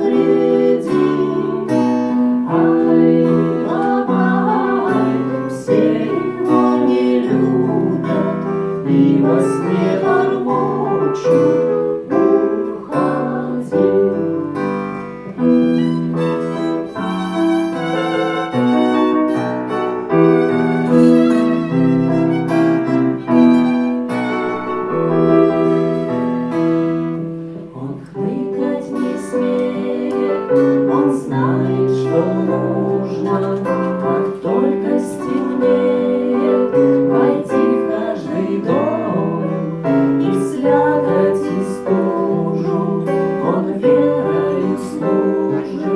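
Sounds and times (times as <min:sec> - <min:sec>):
violin melody: 0:00.0 - 0:27.7
piano accompaniment: 0:00.0 - 0:45.9.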